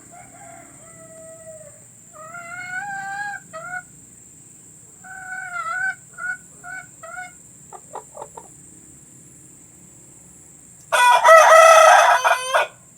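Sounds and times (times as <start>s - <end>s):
rooster crowing: 0.0s - 3.9s, 10.9s - 12.8s
hen clucking: 0.1s - 3.9s, 5.0s - 8.6s.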